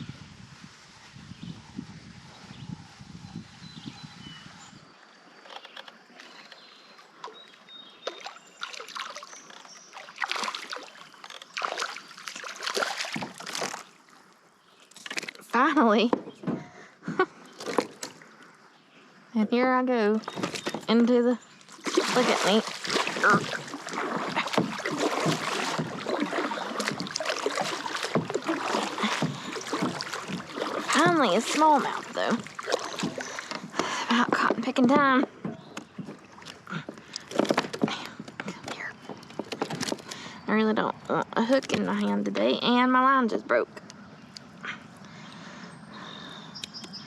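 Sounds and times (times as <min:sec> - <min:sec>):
water splashing around kayak: 0:00.0 - 0:16.4, 0:17.4 - 0:18.6, 0:20.2 - 0:43.3
small knocks and rustles: 0:20.2 - 0:21.0, 0:31.6 - 0:40.2.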